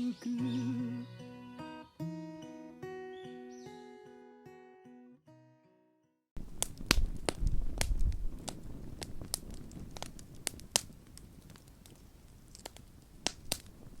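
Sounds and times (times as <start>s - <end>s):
wood fire crackling: 6.4s - 14.0s.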